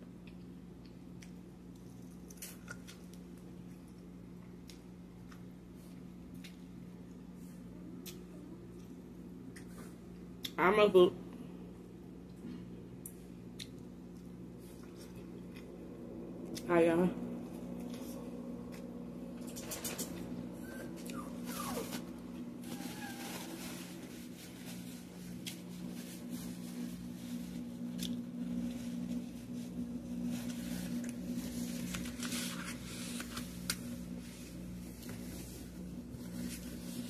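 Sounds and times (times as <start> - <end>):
low steady hum: 0.0 - 37.0
chewing and smacking: 13.0 - 16.6.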